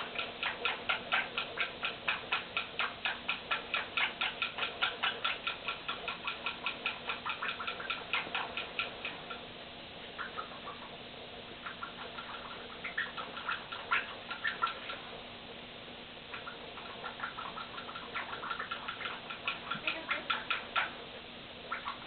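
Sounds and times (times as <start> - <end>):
parrot calling rapidly: 10.2 - 10.9, 11.6 - 15.1, 16.3 - 21.0, 21.7 - 22.0.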